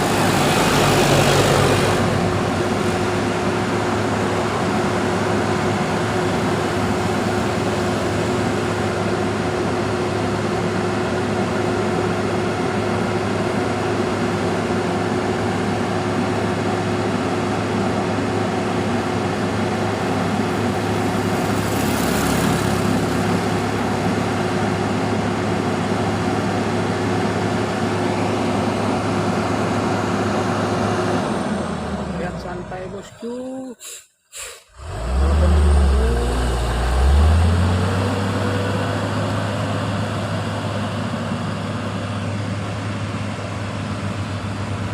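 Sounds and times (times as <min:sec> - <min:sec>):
vehicle engine running: 0:00.0 - 0:33.1, 0:34.8 - 0:44.9
brief hiss: 0:33.8 - 0:34.8.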